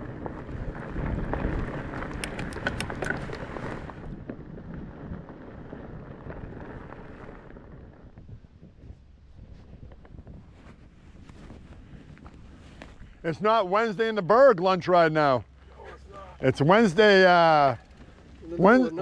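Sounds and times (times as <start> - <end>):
wind buffeting microphone: 0.0 - 13.4
bike tyres rolling on dirt: 0.0 - 19.0.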